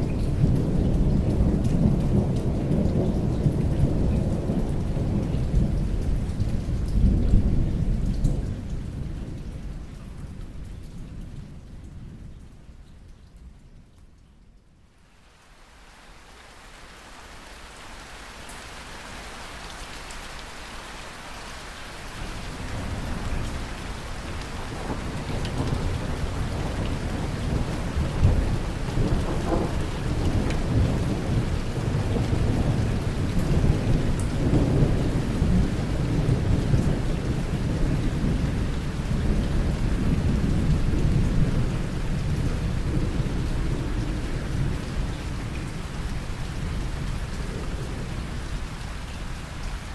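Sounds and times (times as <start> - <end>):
rain falling: 0.0 - 49.9
rolling thunder: 22.2 - 48.8.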